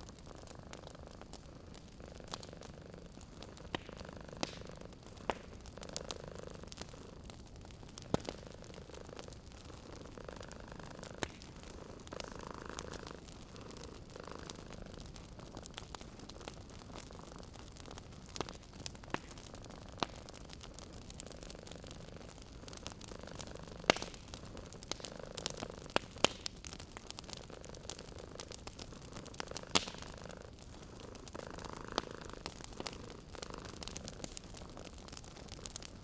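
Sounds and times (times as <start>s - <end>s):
wood fire crackling and popping: 0.0s - 36.0s
cat purring: 0.2s - 35.9s.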